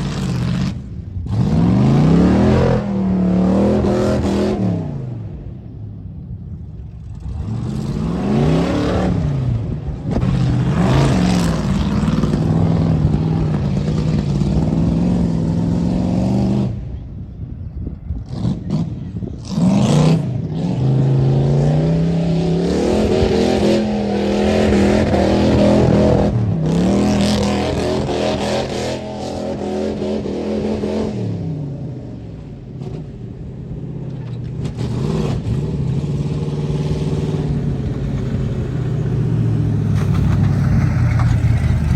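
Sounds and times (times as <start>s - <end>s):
truck engine revving hard: 0.0s - 5.3s, 7.2s - 16.9s, 18.2s - 33.2s, 34.6s - 41.9s.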